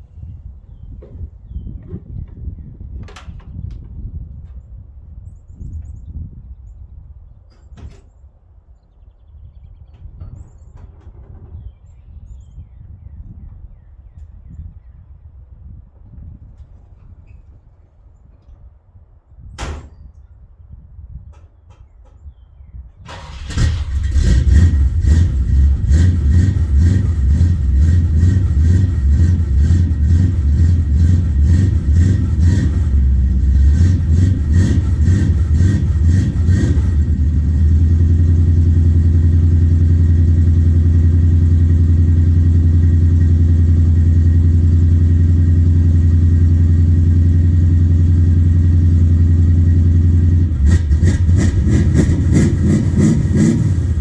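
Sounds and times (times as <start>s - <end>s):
pickup engine idling: 23.2s - 54.0s.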